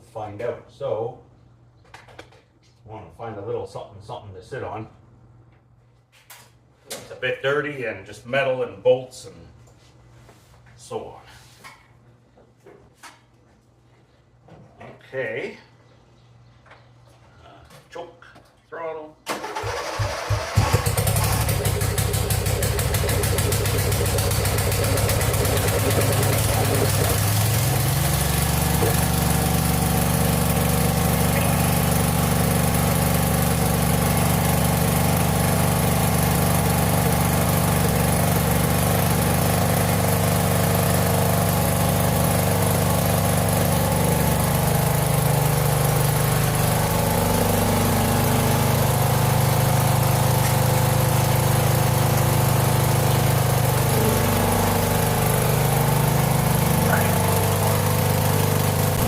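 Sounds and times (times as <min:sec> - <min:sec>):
lawn tractor engine running: 0:19.4 - 0:59.0.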